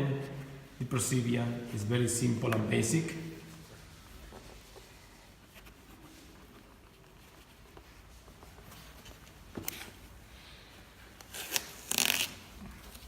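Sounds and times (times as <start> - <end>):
paper and tape rustling: 3.5 - 10.3, 11.0 - 13.0.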